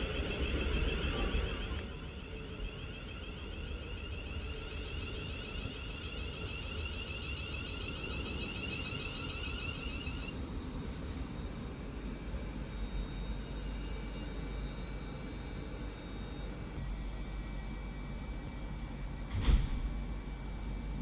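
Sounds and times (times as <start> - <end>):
train rumbling on track: 0.0 - 7.1
high pulsing tone: 0.0 - 19.3.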